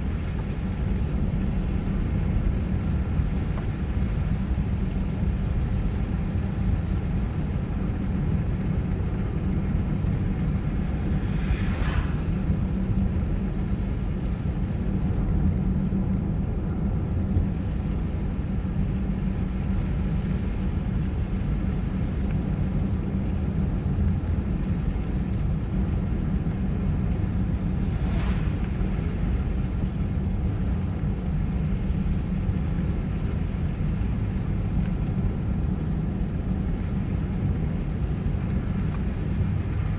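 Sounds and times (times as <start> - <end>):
car road and engine rumble: 0.0 - 39.9
brief swish: 11.2 - 12.5, 27.6 - 29.1.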